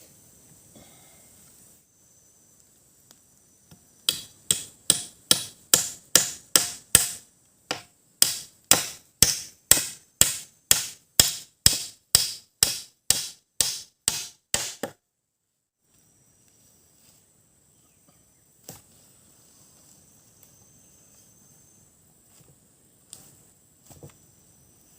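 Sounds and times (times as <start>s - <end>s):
machete striking wood: 4.1s - 15.0s.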